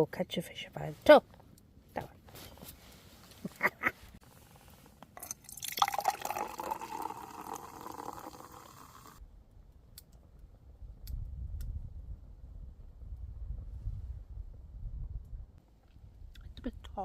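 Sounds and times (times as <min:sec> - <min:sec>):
liquid pouring into cup: 0:05.2 - 0:09.2.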